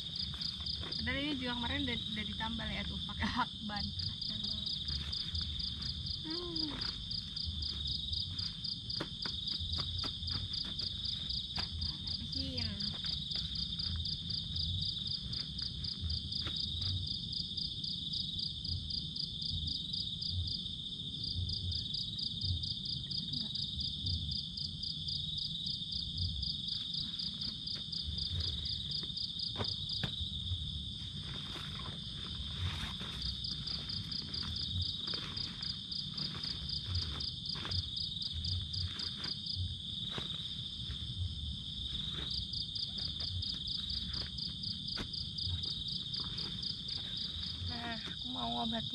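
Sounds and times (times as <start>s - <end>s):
insects buzzing: 0.0s - 48.9s.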